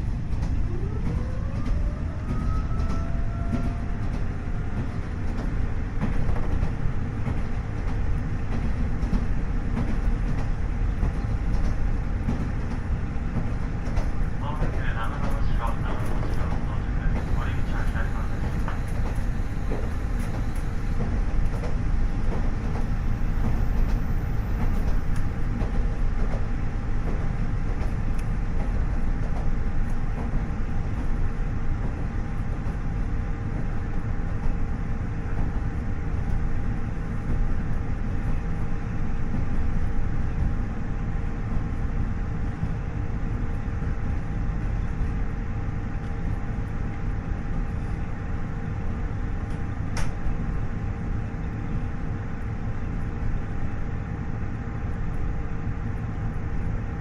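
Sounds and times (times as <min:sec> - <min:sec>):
diesel engine rumble: 0:00.0 - 0:34.6
train wheels on rails: 0:00.0 - 0:57.0
steady whine: 0:13.8 - 0:25.7.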